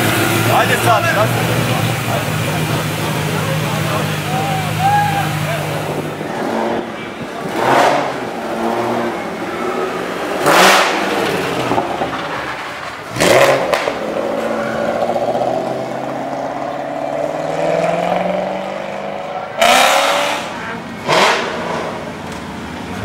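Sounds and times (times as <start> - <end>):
car engine revving: 0.0 - 23.0
engine pulling away: 0.0 - 23.0
engine running: 0.0 - 23.0.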